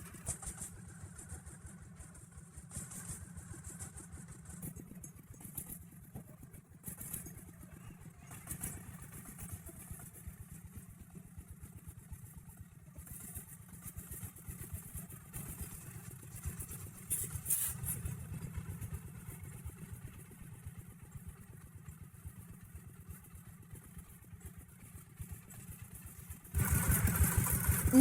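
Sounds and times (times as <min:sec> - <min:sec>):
tractor engine chugging: 0:13.0 - 0:28.0.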